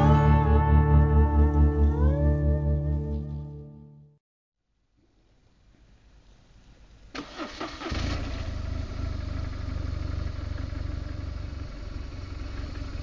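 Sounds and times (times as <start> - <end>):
motorcycle engine idling: 8.5 - 13.0.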